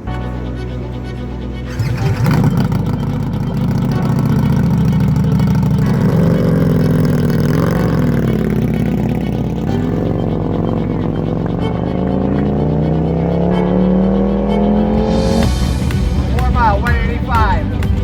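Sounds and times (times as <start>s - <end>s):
motorcycle engine revving: 1.7s - 18.0s.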